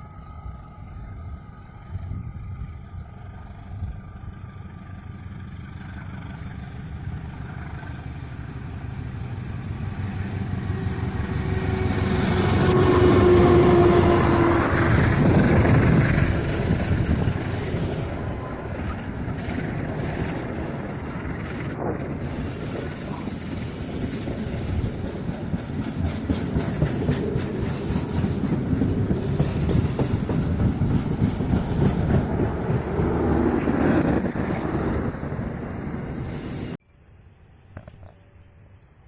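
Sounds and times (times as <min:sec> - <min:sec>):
diesel train passing: 0:00.0 - 0:36.8.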